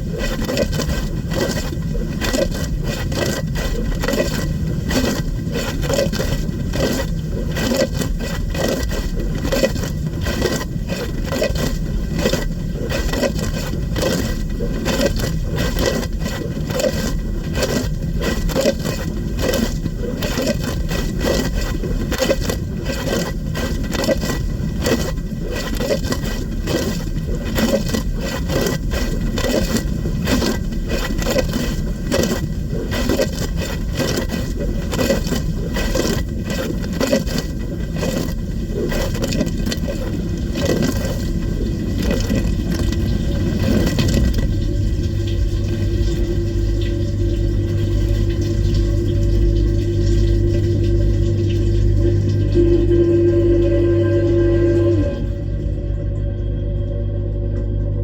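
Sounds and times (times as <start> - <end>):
water jets spattering in dishwasher: 0.0 - 53.7
low rumble: 38.4 - 58.0.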